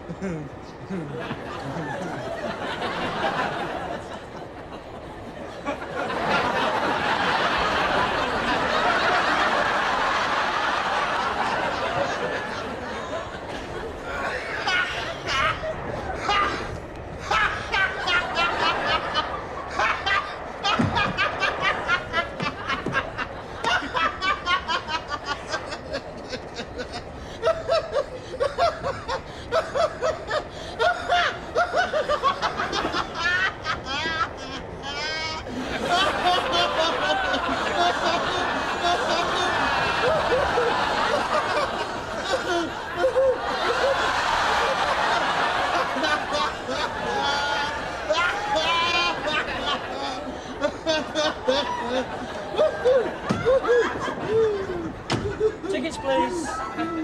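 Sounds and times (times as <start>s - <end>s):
person laughing: 0.0s - 2.1s, 42.2s - 44.0s, 46.0s - 57.0s
studio audience laughing: 0.0s - 57.0s
lower-pitched laughing voice: 45.7s - 57.0s.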